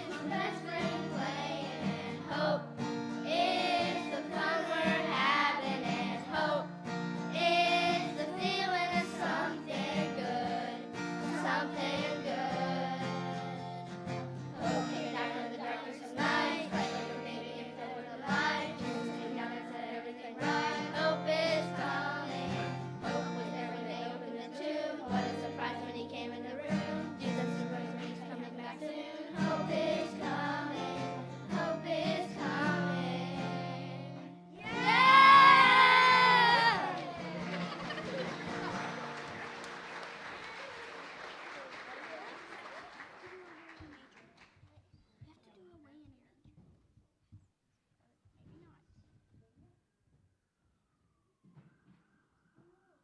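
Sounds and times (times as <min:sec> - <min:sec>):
group of voices singing: 0:00.0 - 0:39.0.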